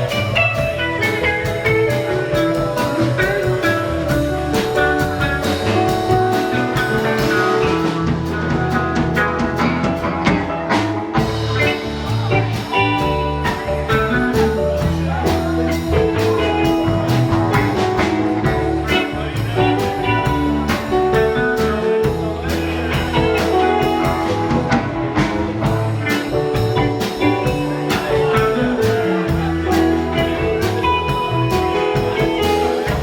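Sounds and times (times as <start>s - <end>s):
bass: 0.0s - 33.0s
drum kit steady beat: 0.0s - 33.0s
electric guitar lines: 0.0s - 33.0s.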